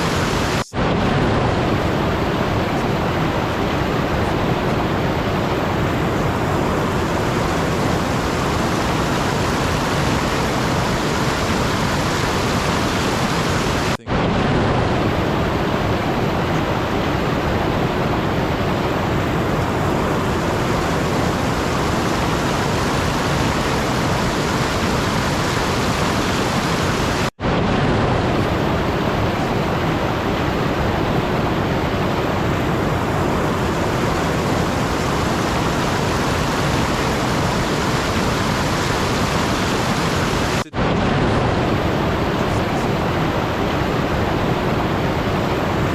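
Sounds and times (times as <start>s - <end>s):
steady rushing noise: 0.0s - 45.9s.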